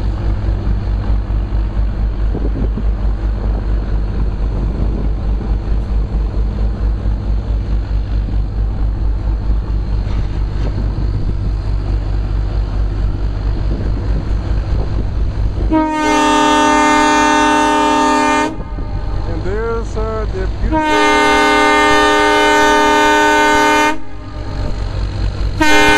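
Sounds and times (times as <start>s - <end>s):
train rumble and clatter: 0.0s - 25.9s
locomotive horn blast: 15.6s - 24.8s, 25.6s - 25.9s.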